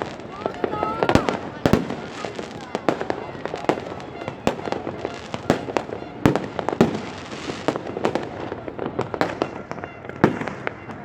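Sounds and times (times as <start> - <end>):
fireworks bangs and pops: 0.0 - 11.0
fireworks crackling: 0.0 - 11.0.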